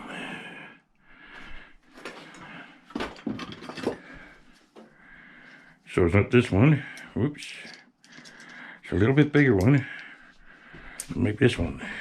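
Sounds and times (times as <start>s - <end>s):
metal tools clinking: 3.0s - 4.2s, 6.9s - 8.8s.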